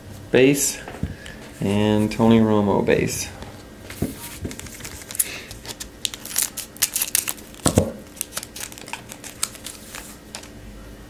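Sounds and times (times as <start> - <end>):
foil wrapper tearing and crinkling: 4.5 - 10.5.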